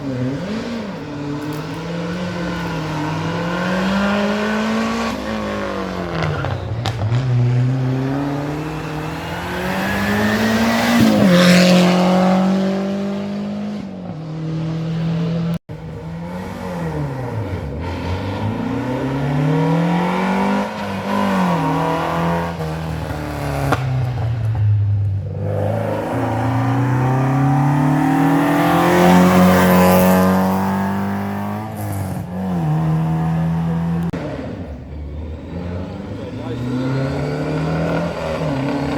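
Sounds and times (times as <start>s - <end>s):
rally car engines revving: 0.0s - 38.9s.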